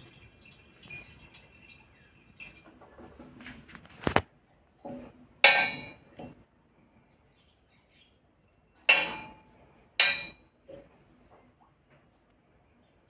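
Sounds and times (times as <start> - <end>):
metal clanking on metal: 4.8 - 6.4, 8.8 - 10.4.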